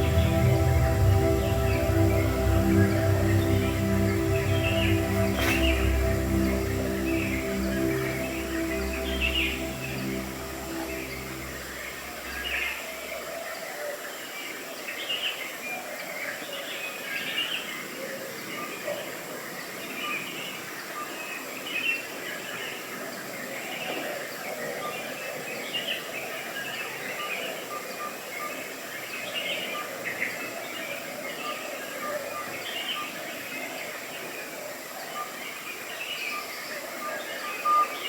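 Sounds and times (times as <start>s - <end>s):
birds chirping and calling: 0.0s - 12.6s
outdoor background hiss: 0.0s - 15.4s.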